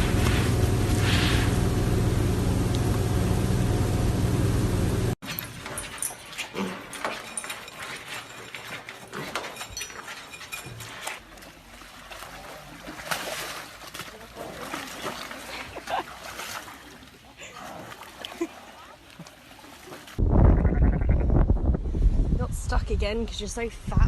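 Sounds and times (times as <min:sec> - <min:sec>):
loud low hum: 0:00.0 - 0:05.2.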